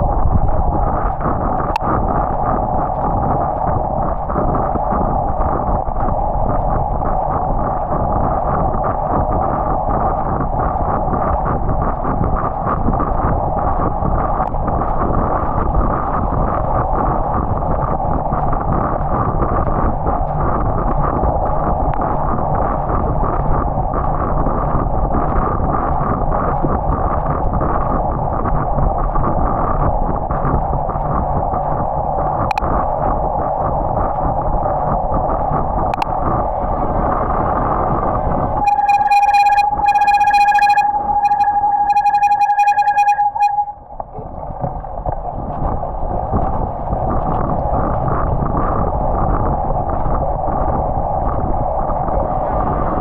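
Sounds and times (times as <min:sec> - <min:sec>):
wind rush on microphone: 0:00.0 - 0:53.0
electronic beeping tone: 0:38.6 - 0:43.8.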